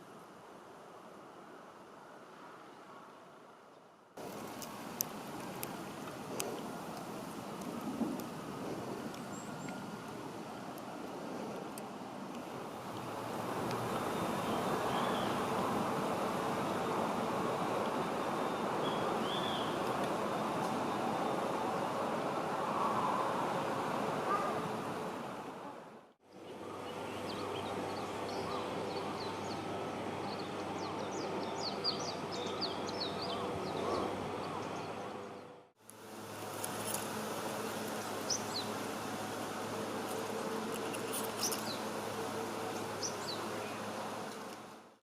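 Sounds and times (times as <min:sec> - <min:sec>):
background hiss: 0:00.0 - 0:33.3, 0:35.8 - 0:44.9
small birds chirping: 0:13.9 - 0:15.5, 0:18.4 - 0:19.9, 0:37.9 - 0:38.8, 0:40.2 - 0:42.0, 0:42.8 - 0:43.9.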